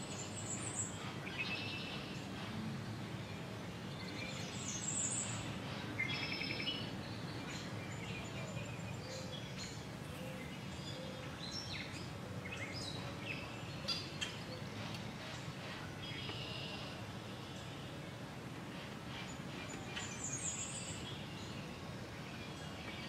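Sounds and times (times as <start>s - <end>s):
small birds chirping: 18.8s - 23.0s.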